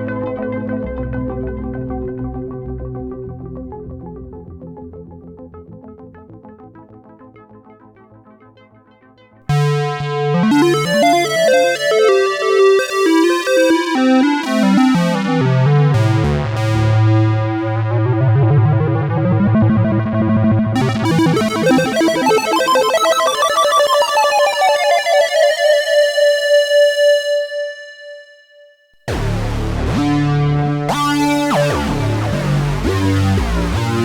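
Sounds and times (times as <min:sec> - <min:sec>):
synthesizer notes stepping downward: 0:09.5 - 0:28.3, 0:29.0 - 0:34.0
pulsing low synth bass note: 0:15.2 - 0:22.0, 0:29.1 - 0:34.0.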